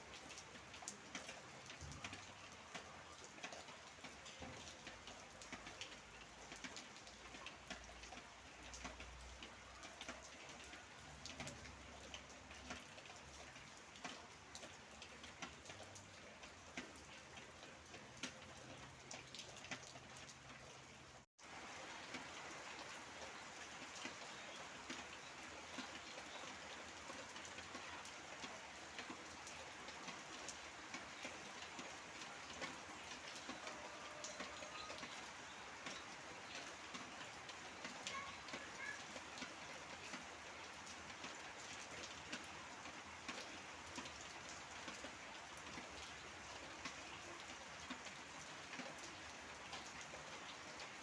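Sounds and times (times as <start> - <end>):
rain falling: 0.0 - 51.0
raindrops ticking on a surface: 0.0 - 51.0.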